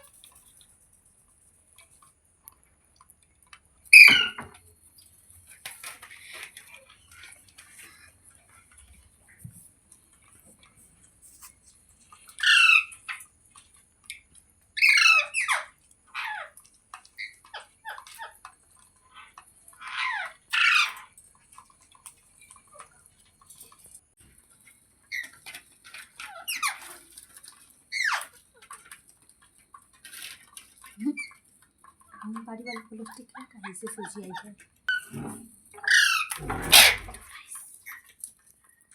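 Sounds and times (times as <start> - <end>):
parakeet screeching: 4.0 - 4.4, 12.4 - 13.0, 14.8 - 16.5, 19.8 - 21.1, 35.8 - 37.2.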